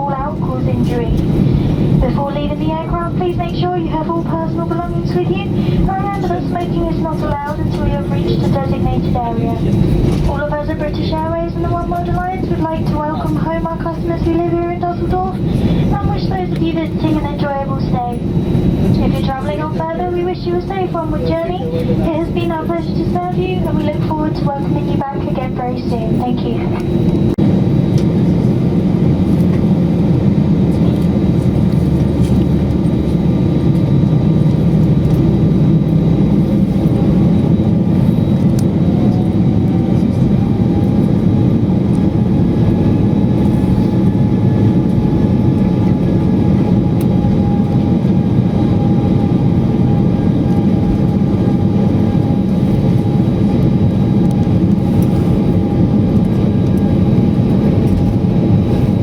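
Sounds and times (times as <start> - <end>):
vehicle engine rumble with whine: 25.4 - 59.0.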